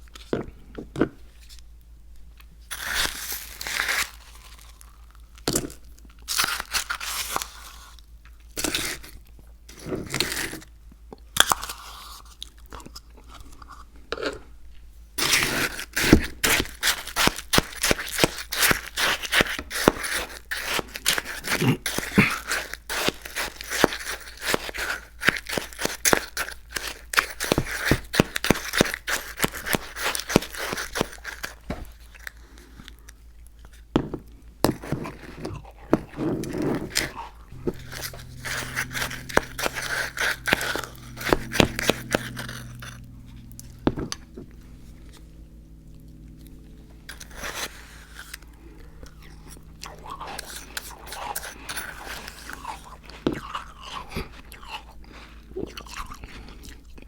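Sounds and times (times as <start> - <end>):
crunchy chewing of ice: 2.7 - 14.6, 15.2 - 43.0, 46.0 - 57.0
low steady hum: 30.6 - 57.0.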